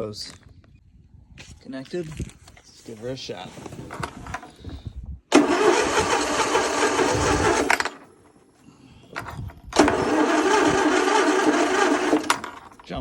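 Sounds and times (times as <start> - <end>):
electric starter cranking engine: 5.3 - 8.4, 9.0 - 12.9.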